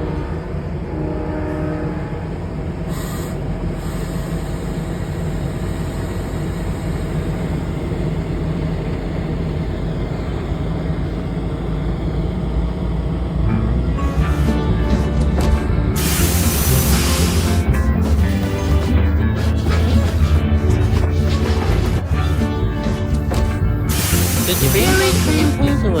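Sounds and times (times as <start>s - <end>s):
diesel locomotive rumbling: 0.0s - 26.0s
short hiss of air: 16.0s - 17.7s, 23.9s - 25.6s.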